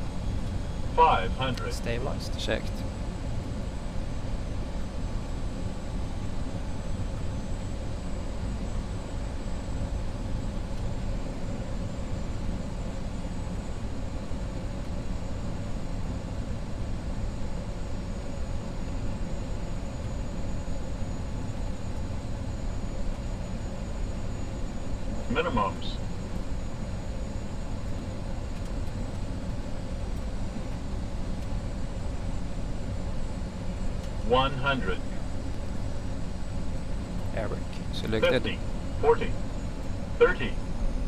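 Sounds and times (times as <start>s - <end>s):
jet engines humming: 0.0s - 6.6s, 19.1s - 41.0s.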